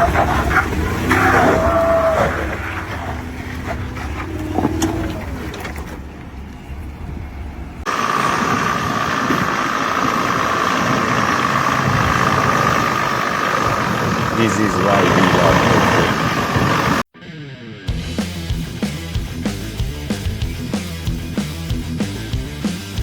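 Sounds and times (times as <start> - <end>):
engine with constant whine: 0.0 - 17.1
vehicle engine rumble: 0.0 - 17.1.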